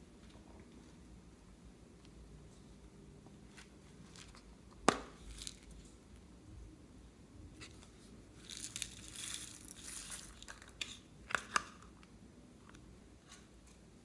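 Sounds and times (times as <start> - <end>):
slime crackling and crinkling: 5.0 - 5.9, 8.4 - 10.9.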